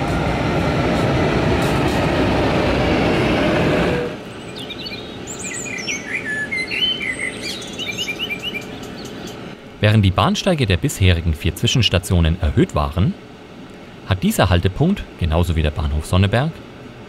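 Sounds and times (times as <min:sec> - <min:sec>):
train rolling past: 0:00.0 - 0:17.0
small birds chirping: 0:04.2 - 0:09.6.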